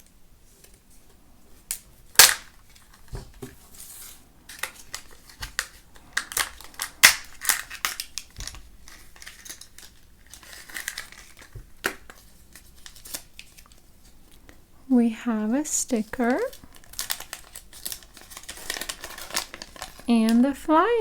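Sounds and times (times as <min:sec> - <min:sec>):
foil wrapper crinkling and tearing: 0:04.5 - 0:13.8, 0:16.2 - 0:20.5.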